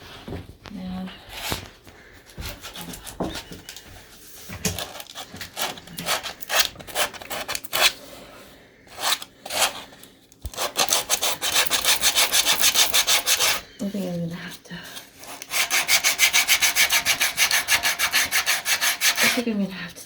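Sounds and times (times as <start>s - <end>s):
sandpaper rubbing on wood: 10.5s - 13.6s, 15.2s - 19.5s.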